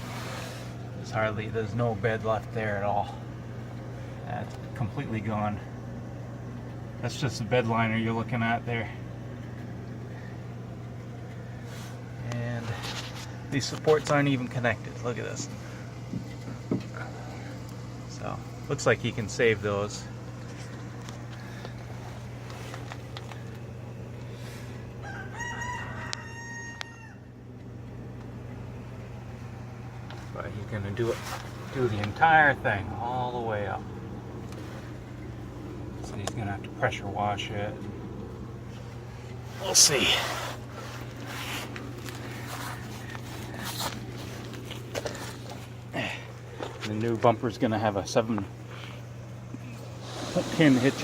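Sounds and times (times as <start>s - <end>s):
steady low hum: 0.0s - 51.0s
scuffing handling noises: 20.3s - 23.6s, 30.0s - 32.2s, 38.6s - 47.1s
rooster crowing: 25.0s - 27.4s.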